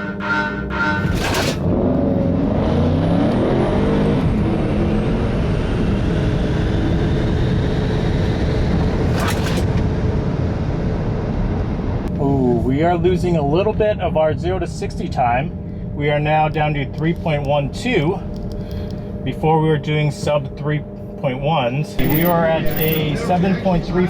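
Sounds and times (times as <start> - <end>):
car accelerating hard: 1.0 - 9.0
road and wind noise: 1.4 - 12.1
short sharp burst of noise: 22.0 - 23.0.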